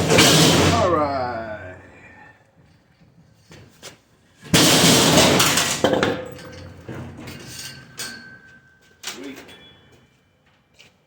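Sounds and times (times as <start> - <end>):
ringing metal clank: 4.8 - 8.9.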